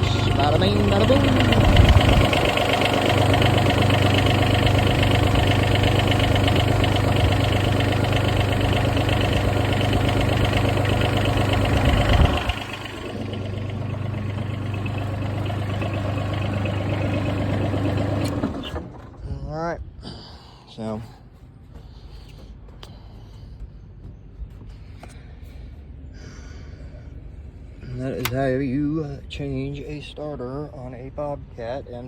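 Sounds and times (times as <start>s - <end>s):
diesel engine running: 0.0s - 19.3s.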